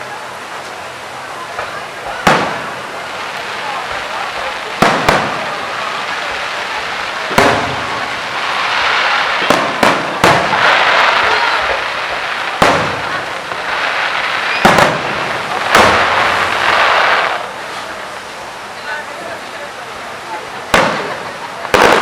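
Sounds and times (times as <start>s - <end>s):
crackle of sparkling fireworks: 0.0s - 22.0s
firework shells bursting: 1.6s - 4.1s, 4.7s - 6.2s, 6.8s - 17.9s, 20.7s - 22.0s.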